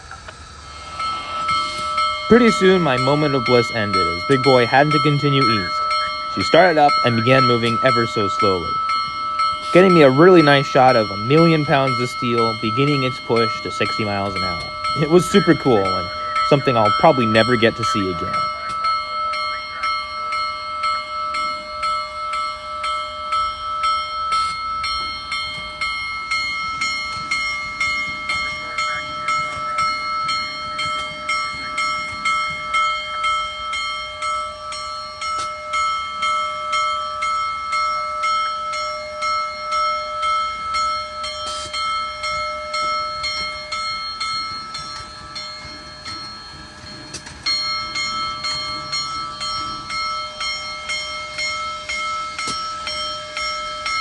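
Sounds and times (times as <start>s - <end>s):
steam locomotive bell ringing: 0.0s - 54.0s.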